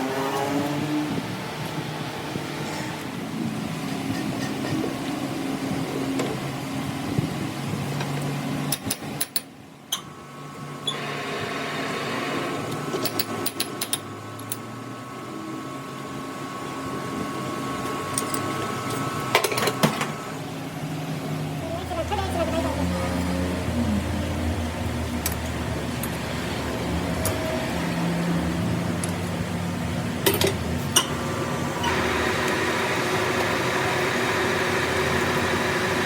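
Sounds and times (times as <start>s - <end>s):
machine running: 22.0s - 36.0s.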